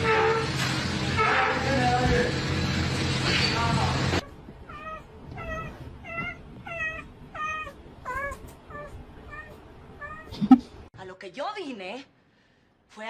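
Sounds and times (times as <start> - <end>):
cat meowing: 4.7 - 10.4.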